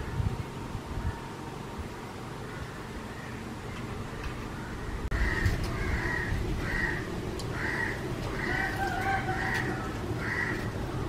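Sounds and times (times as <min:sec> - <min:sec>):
low background hiss: 0:00.0 - 0:11.0
bird calling raspy notes: 0:02.4 - 0:11.0.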